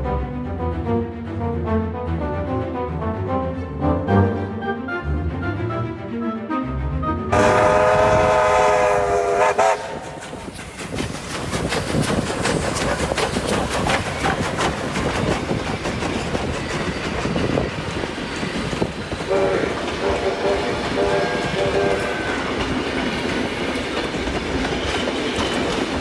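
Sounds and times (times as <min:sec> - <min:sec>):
steam locomotive whistle: 0:07.3 - 0:10.6, 0:19.3 - 0:22.8
train rumbling: 0:07.3 - 0:26.0
wheels clicking on track: 0:07.4 - 0:26.0.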